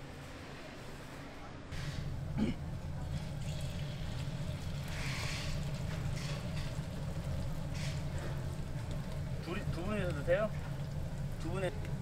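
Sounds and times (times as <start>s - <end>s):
steady low hum: 0.0s - 12.0s
batter sizzling on a griddle: 3.3s - 11.7s.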